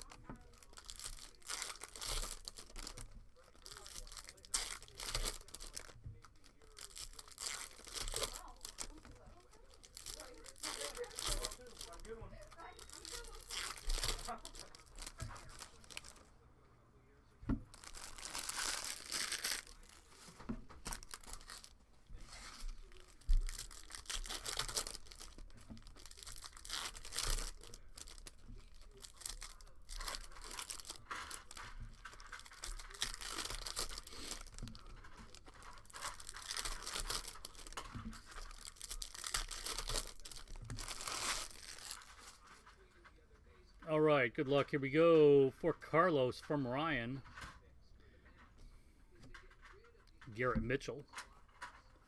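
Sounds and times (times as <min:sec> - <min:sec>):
card packs being torn open: 0:00.0 - 0:16.2, 0:17.7 - 0:42.6
wrappers crinkling: 0:00.0 - 0:16.3, 0:17.6 - 0:42.9.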